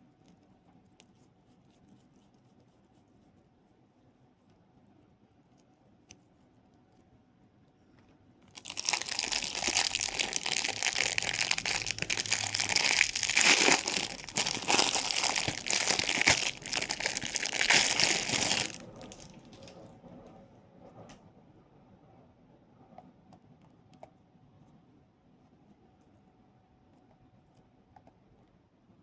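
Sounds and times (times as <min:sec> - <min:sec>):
crinkly packaging crumpled: 0:08.5 - 0:19.9.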